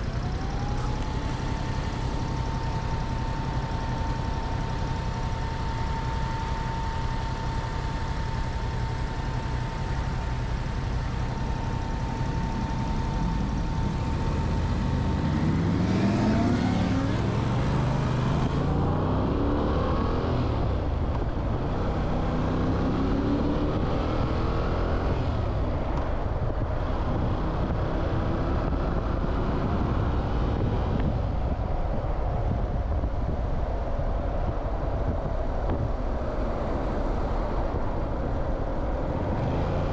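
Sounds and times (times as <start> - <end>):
thin steady whine: 0.0 - 19.0
wind and road noise: 0.0 - 39.9
motorcycle engine accelerating: 9.9 - 31.2.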